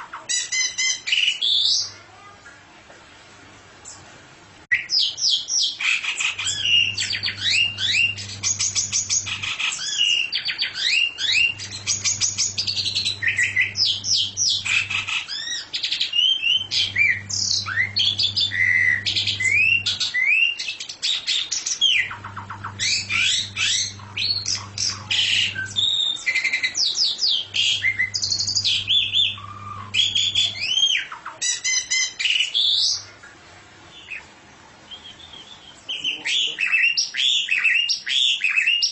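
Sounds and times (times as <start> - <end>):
songbird singing: 4.7 - 33.1
low hum: 6.4 - 9.5, 11.5 - 15.1, 16.6 - 20.0, 22.1 - 26.0, 27.4 - 30.6.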